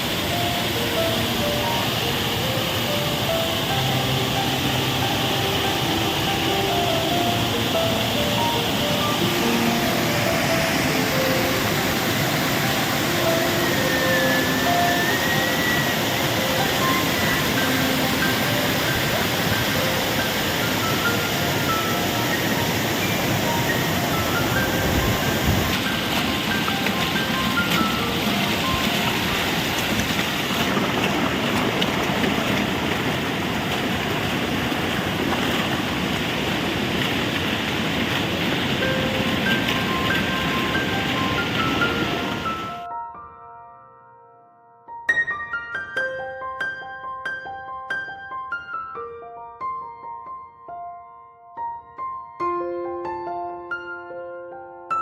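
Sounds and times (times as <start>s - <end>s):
waterfall roaring: 0.0s - 42.9s.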